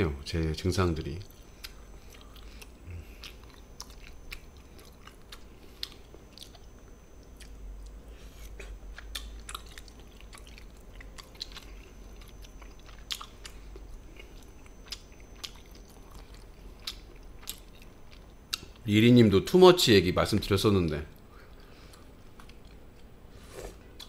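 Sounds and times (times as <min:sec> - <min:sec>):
person chewing food: 0:01.2 - 0:18.8, 0:21.3 - 0:24.0.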